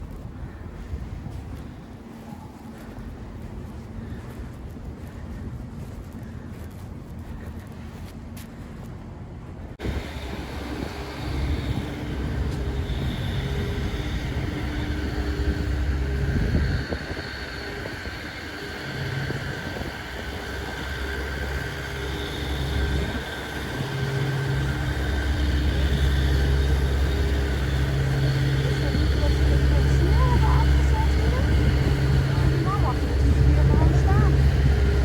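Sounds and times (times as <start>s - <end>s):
vehicle engine running: 9.8s - 35.0s.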